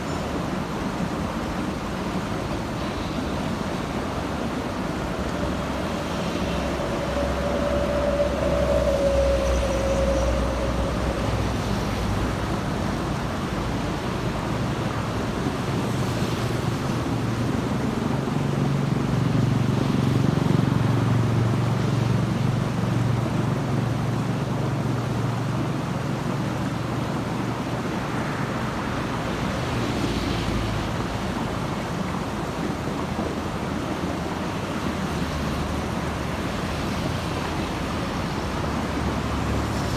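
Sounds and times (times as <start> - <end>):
road traffic passing: 0.0 - 23.3, 27.1 - 39.9
heavy vehicle engine drone: 3.2 - 14.6
whine falling in pitch: 5.9 - 12.6.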